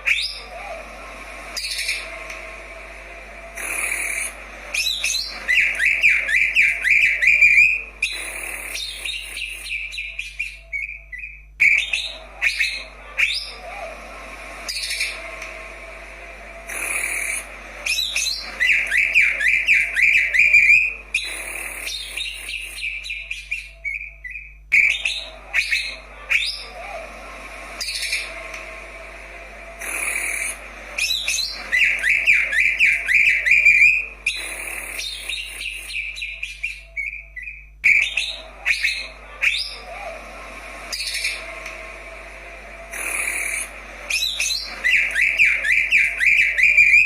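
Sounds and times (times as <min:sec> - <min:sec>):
bird singing trills and whistles: 0:03.6 - 0:13.8, 0:16.7 - 0:27.0, 0:29.8 - 0:40.1, 0:43.0 - 0:47.0.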